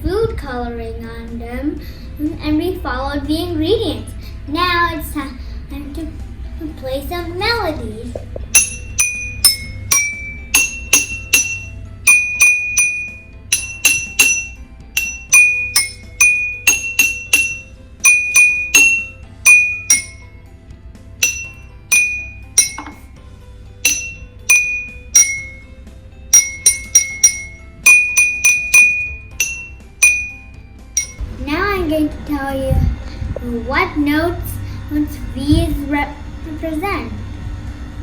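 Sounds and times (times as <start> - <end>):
water glasses tapped in melody: 8.4 - 20.2, 21.2 - 23.1, 23.8 - 25.6, 26.3 - 31.2.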